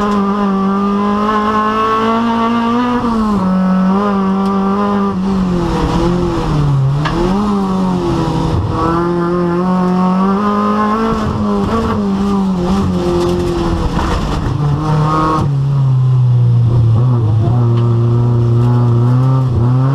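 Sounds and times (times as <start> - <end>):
rally car engine revving: 0.0 - 19.9.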